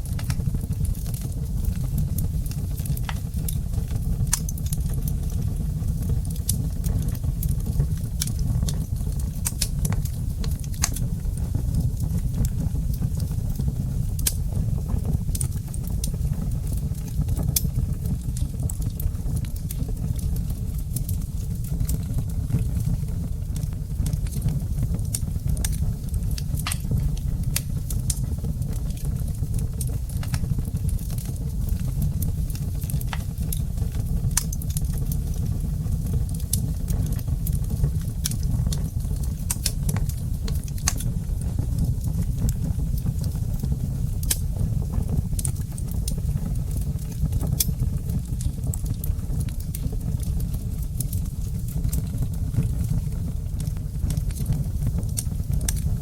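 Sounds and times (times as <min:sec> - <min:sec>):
low rumble of flames: 0:00.0 - 0:56.0
wood fire crackling and popping: 0:00.0 - 0:56.0.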